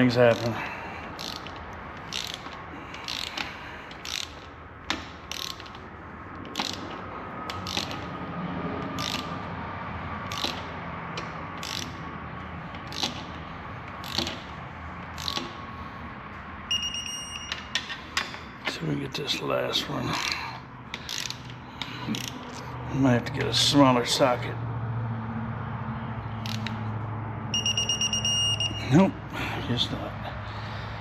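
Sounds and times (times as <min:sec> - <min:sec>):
ratchet wrench pawl clicks: 0:00.0 - 0:08.2, 0:08.8 - 0:09.5, 0:10.2 - 0:12.0, 0:12.7 - 0:15.6, 0:20.2 - 0:22.6, 0:26.4 - 0:26.9.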